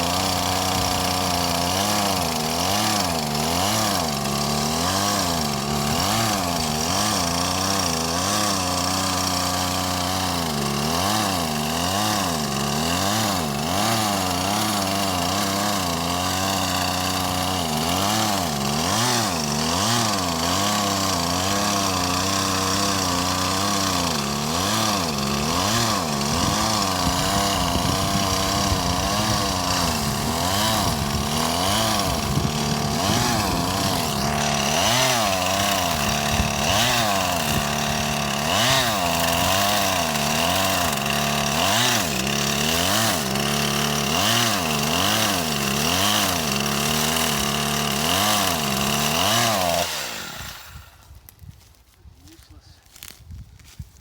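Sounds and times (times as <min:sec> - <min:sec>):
chainsaw cutting a tree: 0:00.0 - 0:53.4.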